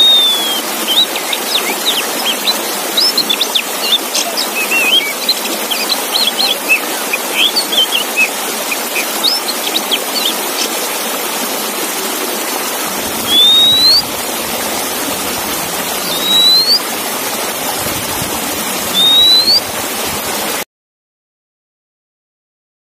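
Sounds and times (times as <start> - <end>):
loud rising bird whistles: 0.0 - 3.2, 3.8 - 6.8, 13.2 - 14.2, 16.0 - 16.9, 18.9 - 19.6
bird chirping: 0.0 - 10.8, 13.2 - 17.0, 18.9 - 19.6.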